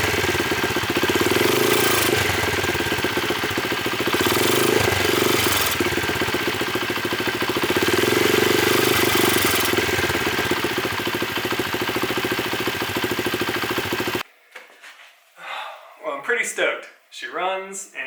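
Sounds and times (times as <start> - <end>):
small motorcycle engine idling: 0.0 - 14.3.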